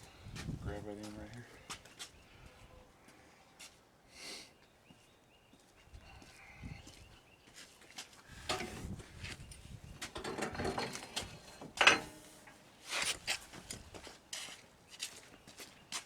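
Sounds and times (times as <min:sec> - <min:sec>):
metal clanks and knocks: 0:08.5 - 0:09.0, 0:10.0 - 0:12.6.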